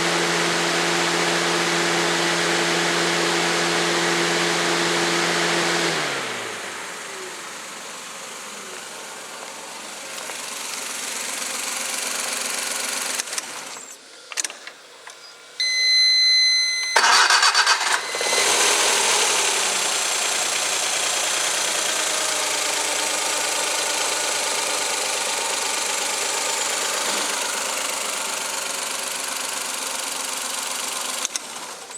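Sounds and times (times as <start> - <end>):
car engine running: 0.0 - 13.6, 17.0 - 31.7
engine starting with loud burst: 16.9 - 20.8.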